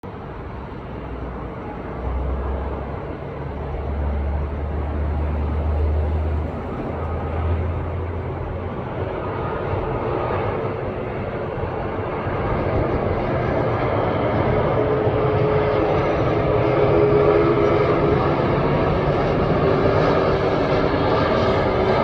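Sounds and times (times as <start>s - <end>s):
jet engine roar: 0.0s - 22.0s
faint whining tone: 0.2s - 9.5s.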